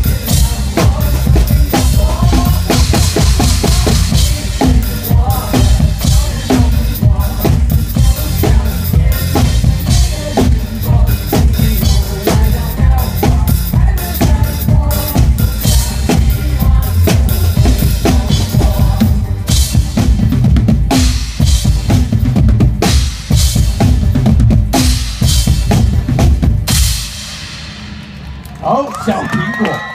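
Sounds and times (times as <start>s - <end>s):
pop music: 0.0s - 21.8s
drum kit played fast: 0.0s - 29.6s.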